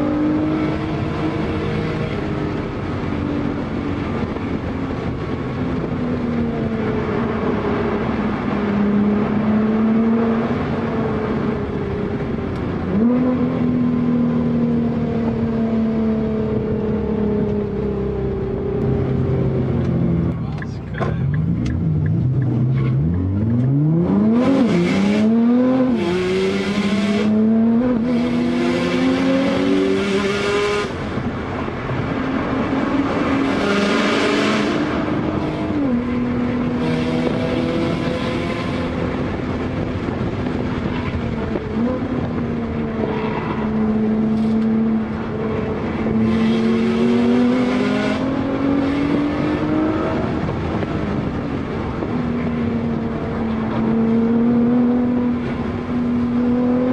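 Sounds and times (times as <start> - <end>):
car engine accelerating: 0.0 - 56.9.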